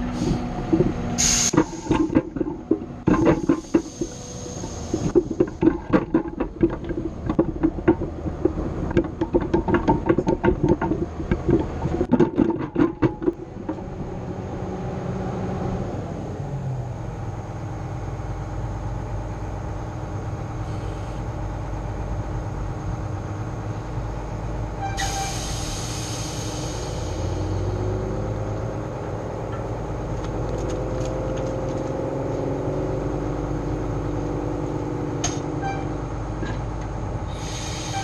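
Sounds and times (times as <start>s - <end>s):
metal clanking and knocking: 0.0s - 14.0s, 34.4s - 36.9s
engine and hydraulic drone: 0.0s - 38.0s
loud hiss: 1.2s - 1.8s, 25.0s - 27.5s, 37.3s - 38.0s.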